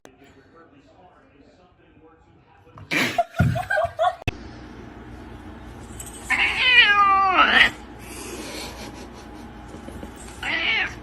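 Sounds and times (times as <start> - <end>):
cat meowing: 6.3 - 7.8, 10.4 - 11.0.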